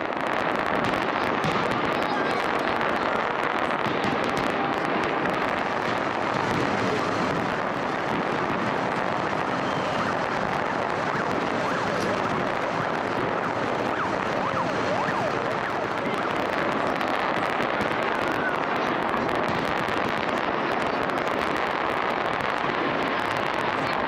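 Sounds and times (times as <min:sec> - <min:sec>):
fireworks crackling: 0:00.0 - 0:24.0
firework whistles: 0:03.9 - 0:17.2.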